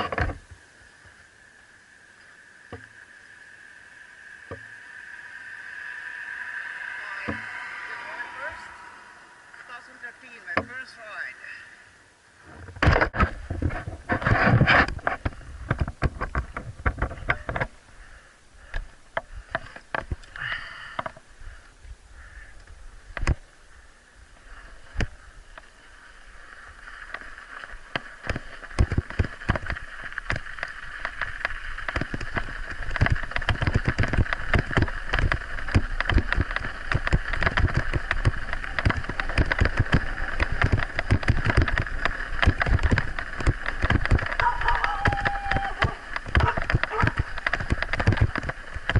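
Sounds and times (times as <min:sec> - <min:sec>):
steady high hum: 0:00.0 - 0:48.9
bike knocking and rattling: 0:12.6 - 0:17.8, 0:26.7 - 0:48.9
wind rumble on microphone: 0:27.1 - 0:48.9.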